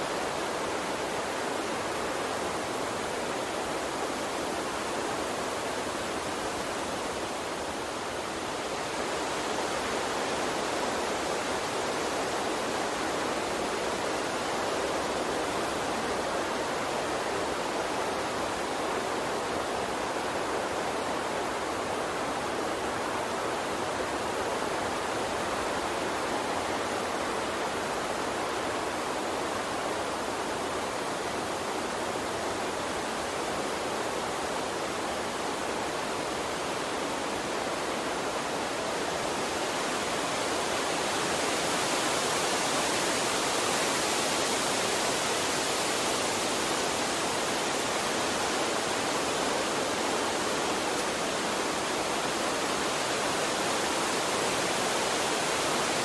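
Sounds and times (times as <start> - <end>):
small stream flowing: 0.0 - 56.0.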